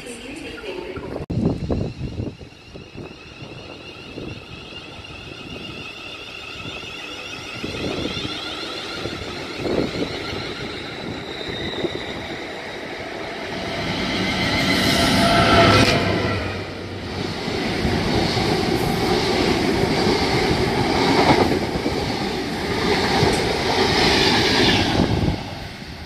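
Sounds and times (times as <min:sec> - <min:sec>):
train approaching: 0:00.0 - 0:26.0.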